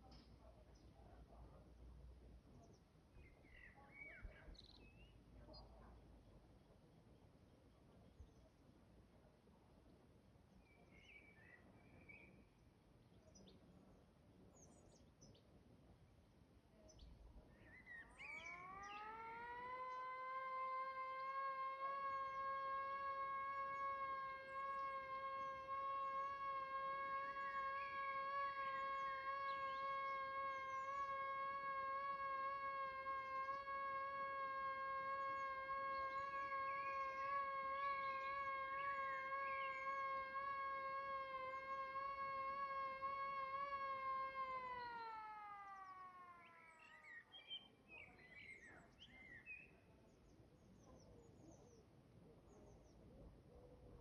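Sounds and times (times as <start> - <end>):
birds chirping: 16.9 - 49.8.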